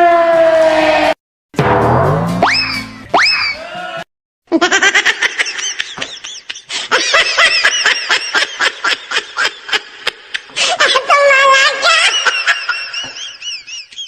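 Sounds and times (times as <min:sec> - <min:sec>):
high laughter: 0:04.5 - 0:14.0.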